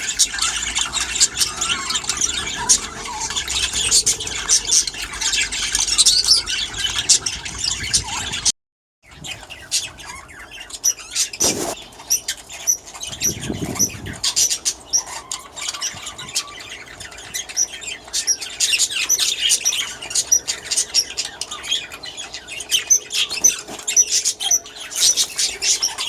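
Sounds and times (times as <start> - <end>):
budgerigars chattering and squawking: 0.0 - 8.5, 9.1 - 26.0.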